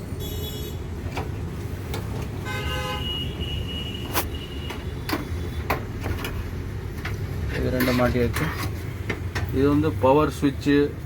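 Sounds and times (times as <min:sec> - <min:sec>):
road traffic rumbling: 0:00.0 - 0:11.0
vehicle horn tooting: 0:02.4 - 0:05.0.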